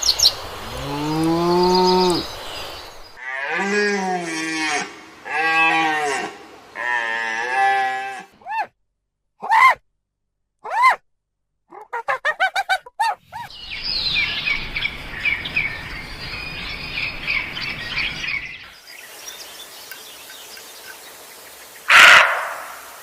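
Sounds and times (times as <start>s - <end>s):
chorus of bird chirps: 0.0s - 3.2s, 13.3s - 23.0s
faint hiss: 0.0s - 3.2s, 13.8s - 23.0s
rising-and-falling calls: 0.0s - 3.2s, 13.4s - 23.0s.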